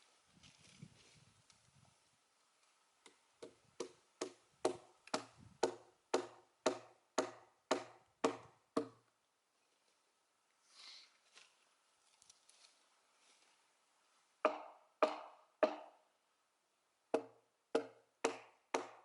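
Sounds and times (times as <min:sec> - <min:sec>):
sharp blows into a log: 0:14.5 - 0:15.9, 0:17.2 - 0:19.0.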